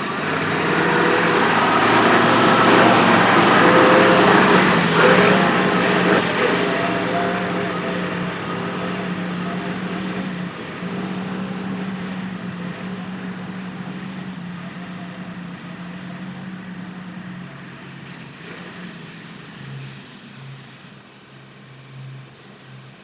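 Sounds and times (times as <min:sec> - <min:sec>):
tractor diesel engine running: 0:00.0 - 0:18.8.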